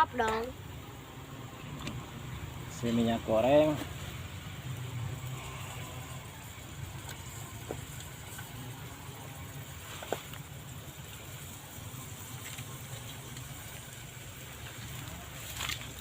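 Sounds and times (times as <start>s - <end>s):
faint hiss: 0.0s - 16.0s.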